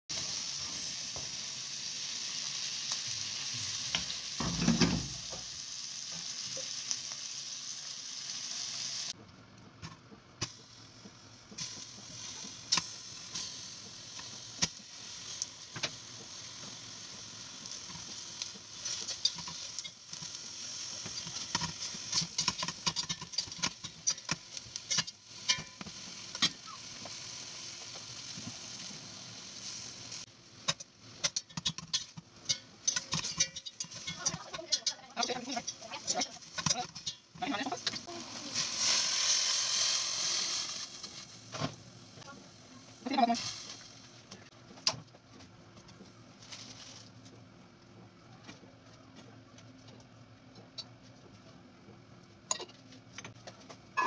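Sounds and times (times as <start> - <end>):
food sizzling in a pan: 0.1 - 9.2, 10.4 - 44.6.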